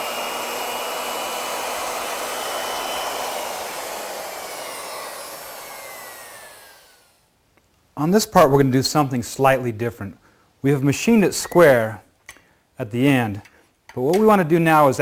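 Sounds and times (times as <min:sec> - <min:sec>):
router whining: 0:00.0 - 0:07.2.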